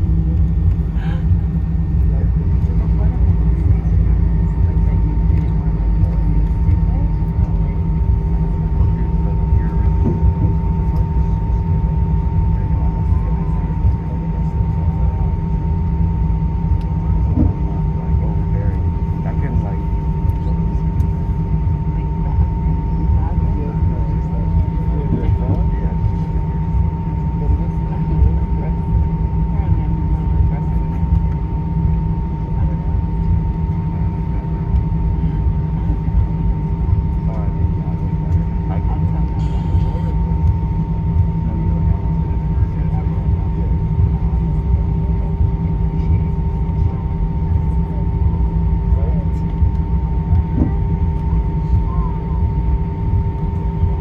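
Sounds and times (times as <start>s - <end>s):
aircraft cabin engine rumble: 0.0s - 54.0s
steady hum: 0.0s - 54.0s
thin steady whine: 0.0s - 54.0s.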